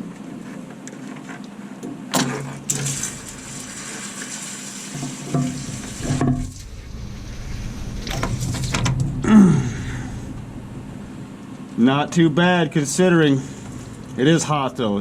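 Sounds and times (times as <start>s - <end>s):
oil splattering: 2.7s - 9.1s.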